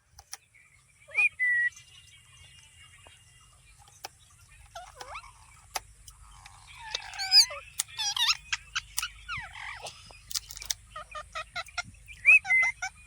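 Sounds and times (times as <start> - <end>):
parrot whistles and squawks: 4.7 - 5.5, 6.5 - 13.0.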